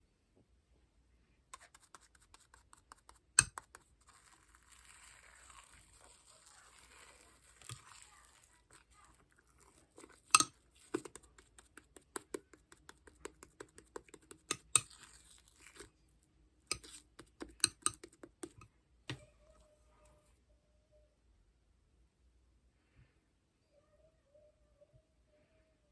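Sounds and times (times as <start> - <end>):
slime squishing: 1.6 - 16.0, 16.7 - 19.2.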